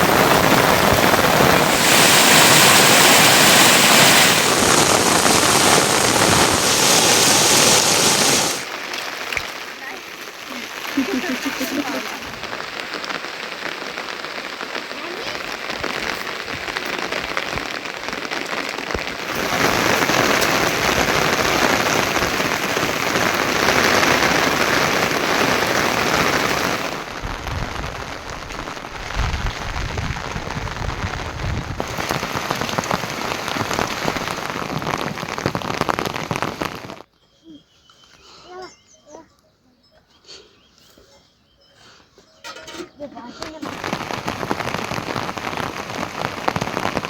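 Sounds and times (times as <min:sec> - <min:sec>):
heavy rain pouring: 0:00.0 - 0:37.0, 0:43.4 - 0:47.0.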